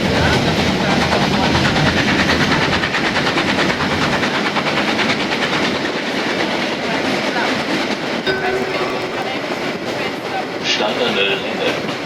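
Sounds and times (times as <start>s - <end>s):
train wheels clattering over rails: 0.0s - 8.2s.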